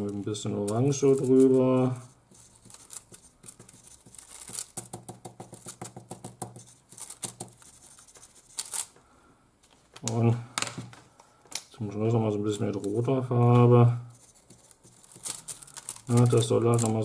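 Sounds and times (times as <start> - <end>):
pen scribbling on crinkled foil: 0.0 - 9.0, 14.1 - 17.0.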